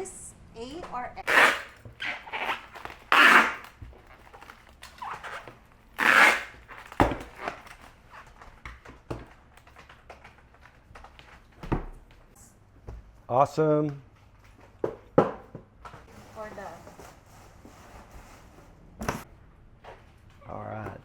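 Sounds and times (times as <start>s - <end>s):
packing tape pulled off roll: 1.2s - 8.4s.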